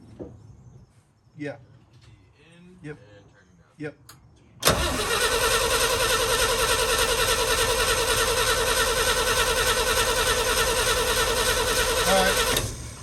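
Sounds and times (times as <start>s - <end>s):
starter motor cranking engine: 4.6s - 13.0s.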